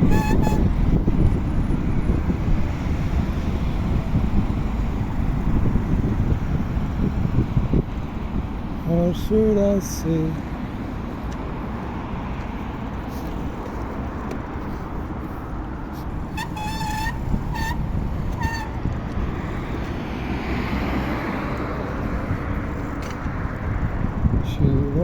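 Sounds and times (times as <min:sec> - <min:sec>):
wind noise: 0:00.0 - 0:09.4, 0:10.8 - 0:25.0
road traffic: 0:00.0 - 0:25.0
vehicle passing: 0:09.9 - 0:24.4.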